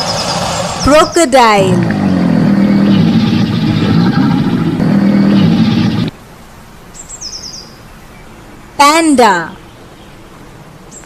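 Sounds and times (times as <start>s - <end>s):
crocodile growling: 1.6s - 6.2s.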